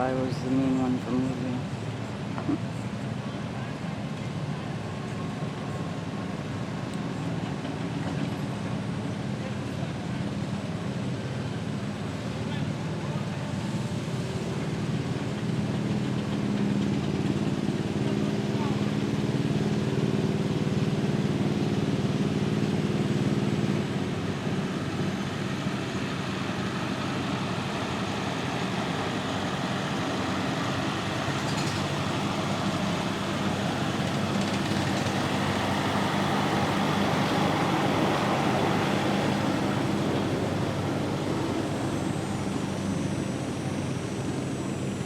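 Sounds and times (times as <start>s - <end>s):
garden tractor engine running: 10.5s - 45.0s.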